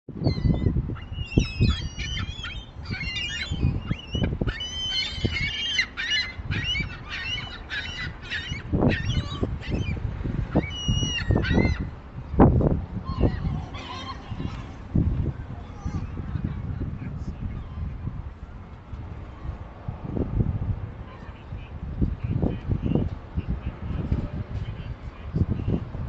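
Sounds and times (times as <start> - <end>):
seagulls calling: 0.2 - 12.0, 13.1 - 14.9.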